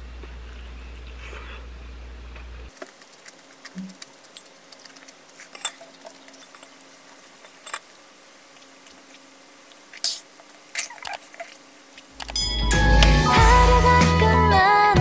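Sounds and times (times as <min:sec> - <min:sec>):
faint steady hum: 0:00.0 - 0:15.0
chewing crunchy food: 0:02.3 - 0:07.6, 0:08.4 - 0:12.3
mouth clicks and smacks: 0:02.8 - 0:06.5, 0:08.5 - 0:12.3
swallowing: 0:08.5 - 0:12.2.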